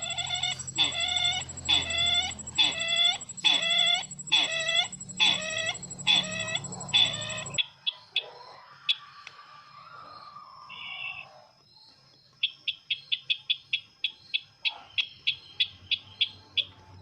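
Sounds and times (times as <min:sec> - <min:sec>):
bird lure call: 0:00.0 - 0:07.6
high whine and hum: 0:00.0 - 0:07.6
faint bird chirps: 0:00.0 - 0:08.1.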